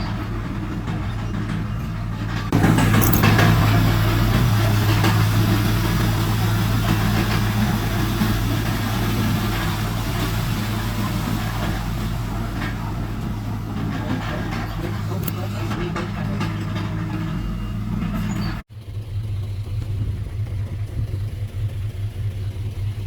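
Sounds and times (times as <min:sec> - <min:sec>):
metallic knocks: 0:00.0 - 0:18.6
diesel engine running: 0:00.0 - 0:23.0.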